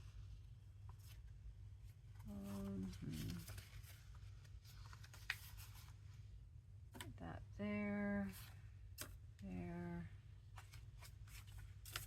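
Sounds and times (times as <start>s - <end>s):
low steady hum: 0.0s - 12.0s
paper sheets rustling: 2.2s - 6.1s, 10.5s - 12.0s.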